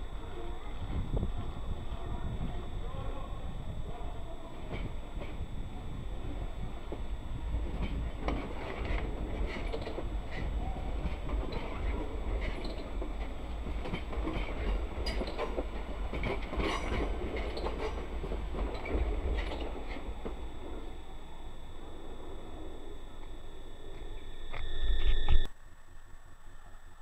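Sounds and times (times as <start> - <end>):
wheels clattering over rail joints: 7.7 - 21.0.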